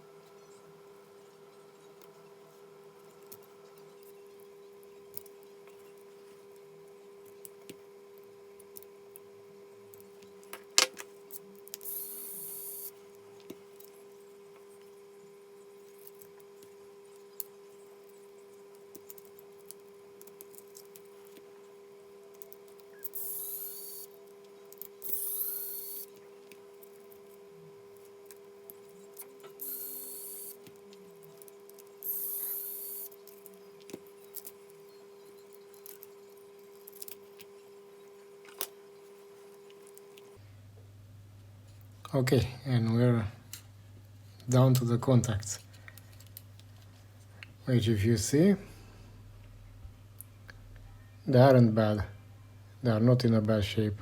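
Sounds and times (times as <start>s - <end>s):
electric screwdriver whining: 23.0s - 24.1s.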